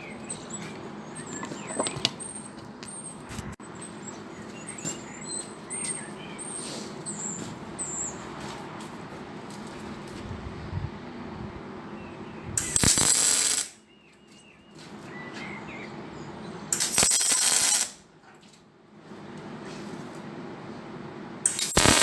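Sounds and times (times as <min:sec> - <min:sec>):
birds chirping: 0:00.0 - 0:09.1, 0:11.6 - 0:12.8, 0:13.8 - 0:16.8
low background hum: 0:00.0 - 0:22.0.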